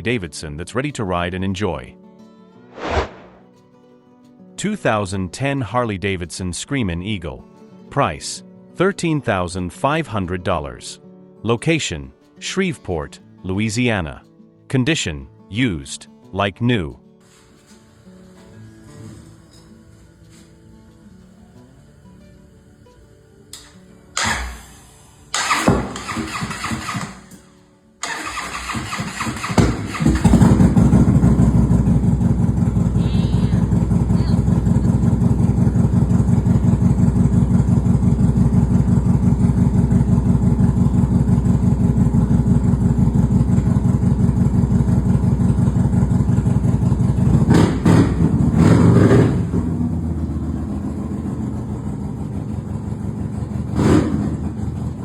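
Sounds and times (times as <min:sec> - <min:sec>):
motorcycle starting and idling: 0:17.3 - 0:20.6, 0:23.5 - 0:55.0
motorcycle engine revving: 0:28.0 - 0:55.0.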